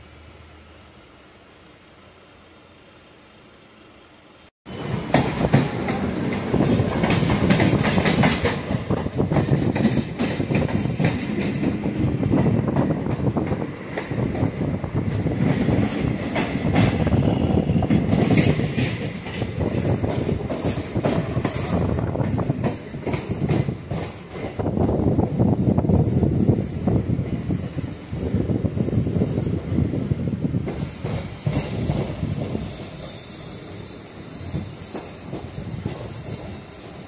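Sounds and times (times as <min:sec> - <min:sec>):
train rumble: 0:00.0 - 0:37.0
wheel clatter over rail joints: 0:04.7 - 0:17.2, 0:17.8 - 0:24.7.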